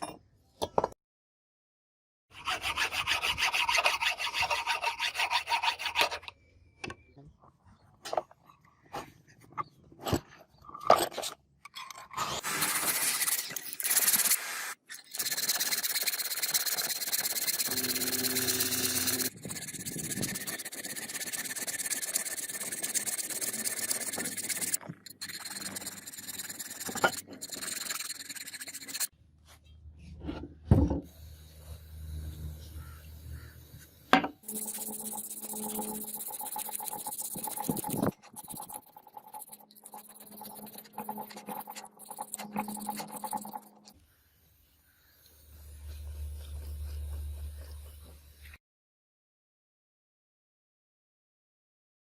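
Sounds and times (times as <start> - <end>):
filing and rubbing strokes: 2.3 - 6.3, 12.4 - 29.2, 32.7 - 48.6.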